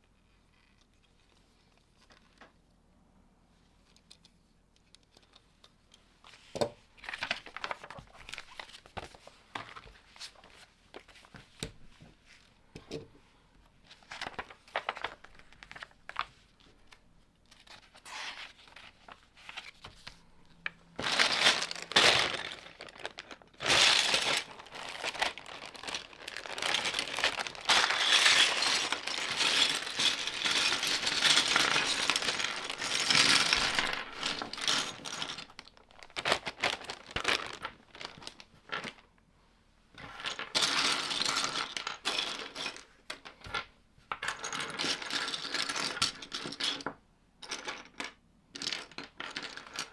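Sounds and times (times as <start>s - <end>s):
bricks and packaging rattling: 21.0s - 38.1s.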